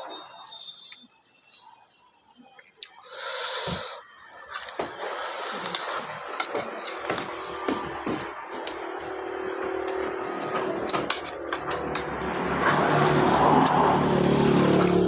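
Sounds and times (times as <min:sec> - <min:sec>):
chewing: 0:04.4 - 0:11.4
steady hum: 0:04.4 - 0:15.0
utensils clicking on a plate: 0:04.6 - 0:11.8.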